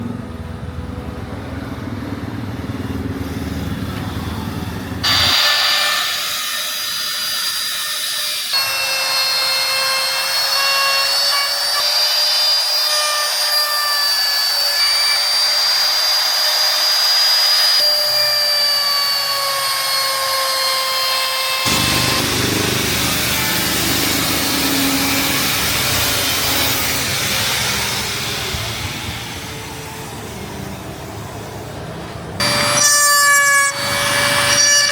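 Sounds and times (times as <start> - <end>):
power carving tool grinding wood: 5.0 - 30.1, 32.4 - 34.9.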